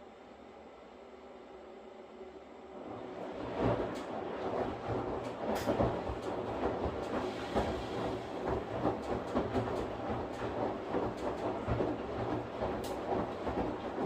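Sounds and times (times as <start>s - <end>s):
washing machine drum churning: 3.0s - 14.0s.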